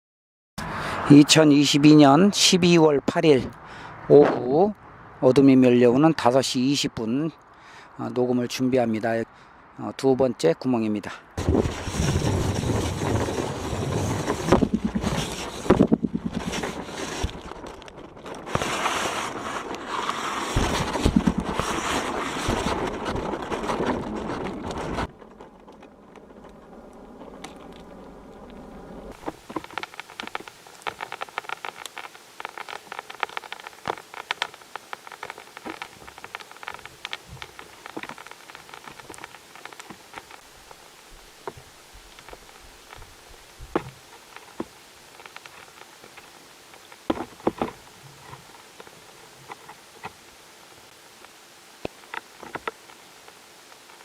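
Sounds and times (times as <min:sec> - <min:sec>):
rustling and knocking handling noise: 0:11.4 - 0:27.9, 0:29.1 - 0:50.2, 0:51.9 - 0:54.0
irregular clicks and crackles: 0:11.4 - 0:54.0
steady hiss: 0:27.1 - 0:54.0.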